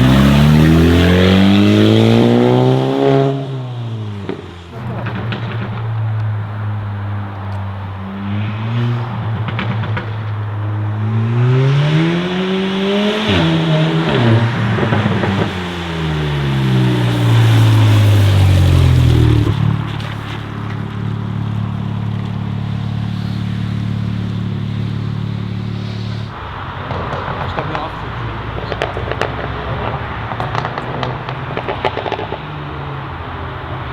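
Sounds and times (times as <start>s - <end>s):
sports car engine accelerating: 0.0s - 33.9s
low engine idle: 15.4s - 26.4s.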